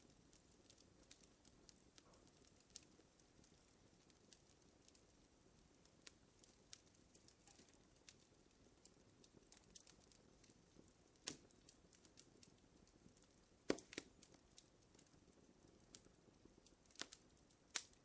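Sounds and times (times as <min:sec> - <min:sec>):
fire hissing: 0:00.0 - 0:18.0
wood fire crackling: 0:00.0 - 0:18.0
loud fire pops: 0:05.8 - 0:18.0.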